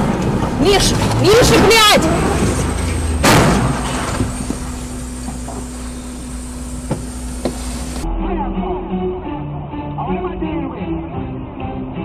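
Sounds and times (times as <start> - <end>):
vehicle rumble from inside cabin: 0.0 - 8.1
car crash: 0.4 - 5.8
faint steady hum: 2.4 - 8.1.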